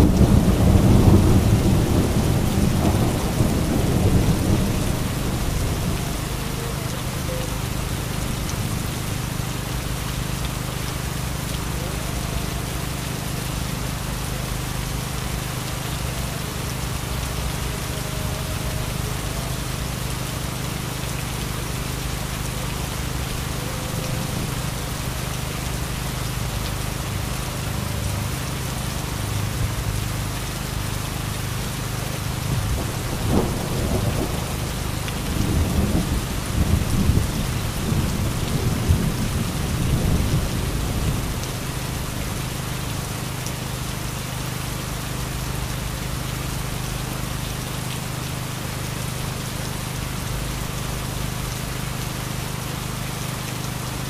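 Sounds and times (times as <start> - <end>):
thunder rumbling: 0.0 - 8.9, 32.5 - 42.1
heavy rain pouring: 0.0 - 54.0.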